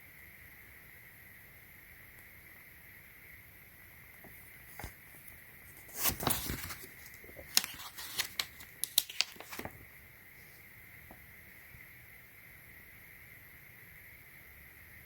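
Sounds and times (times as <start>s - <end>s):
packaging rustling: 4.7s - 9.9s
sharp clicks and crinkles: 5.8s - 9.8s.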